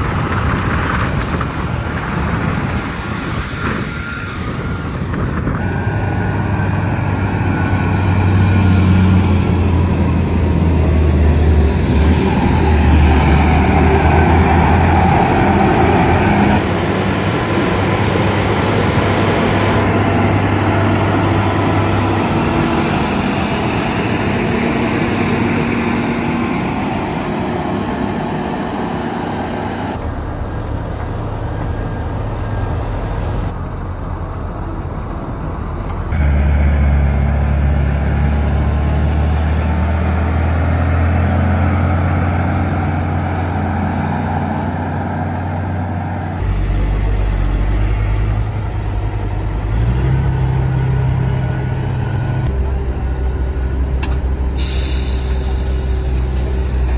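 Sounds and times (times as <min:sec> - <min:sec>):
heavy diesel engine droning: 0:00.0 - 0:56.9.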